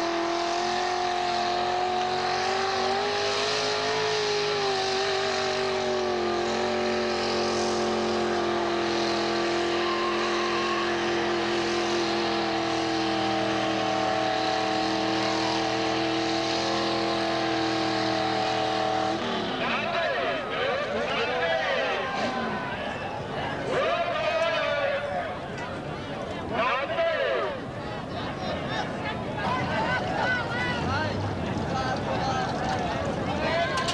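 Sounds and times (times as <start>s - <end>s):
racing car engine at high revs: 0.0s - 25.7s.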